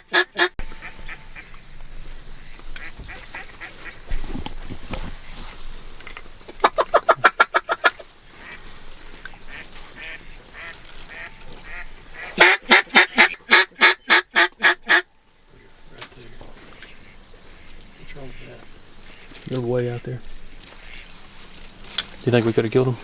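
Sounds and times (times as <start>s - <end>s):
duck call quacking: 0.0s - 1.5s, 6.6s - 8.6s, 9.5s - 15.1s.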